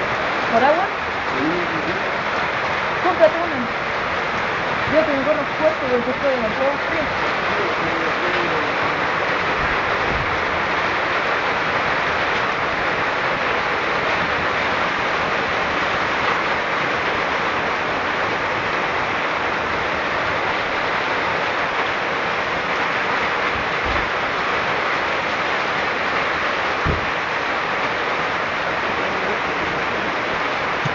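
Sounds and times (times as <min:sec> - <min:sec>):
steady rain falling: 0:00.0 - 0:30.9
faint low bumps: 0:26.8 - 0:27.4.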